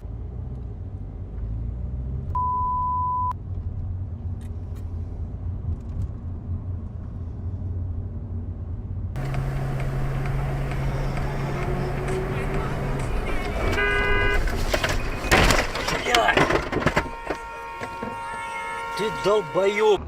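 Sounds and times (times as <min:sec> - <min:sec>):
car driving rumble: 0:00.0 - 0:20.0
traffic noise: 0:00.0 - 0:20.0
electronic beep: 0:02.4 - 0:03.4.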